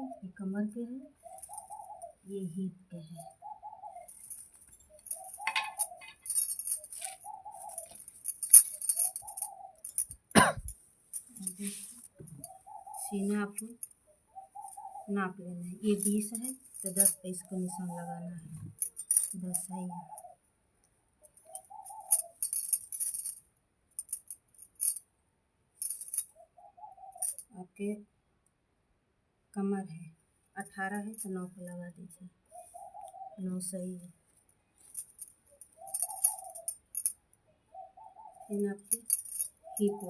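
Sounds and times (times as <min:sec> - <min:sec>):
light jingling: 0:04.0 - 0:13.9, 0:15.8 - 0:19.9, 0:21.4 - 0:23.4, 0:25.8 - 0:26.3, 0:34.8 - 0:37.1, 0:38.8 - 0:40.0
scratchy rustling: 0:04.1 - 0:10.0, 0:11.2 - 0:12.2
bird cooing: 0:05.1 - 0:06.2, 0:35.8 - 0:36.6.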